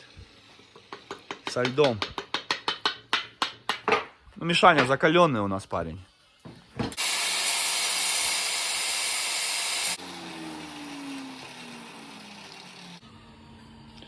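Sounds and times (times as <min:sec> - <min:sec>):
wet tile saw running: 0:07.0 - 0:13.0
motor winding down: 0:07.0 - 0:14.0.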